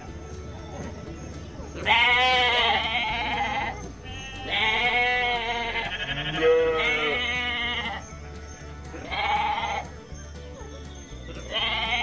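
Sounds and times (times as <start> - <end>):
sheep bleating: 1.8 - 8.0, 8.9 - 10.0, 11.4 - 12.0.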